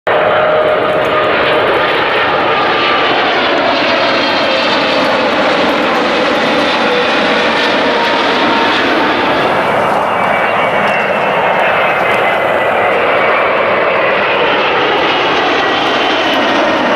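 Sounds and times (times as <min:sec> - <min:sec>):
jet engines roaring: 0:00.1 - 0:16.9
whining engine tones: 0:00.3 - 0:16.9.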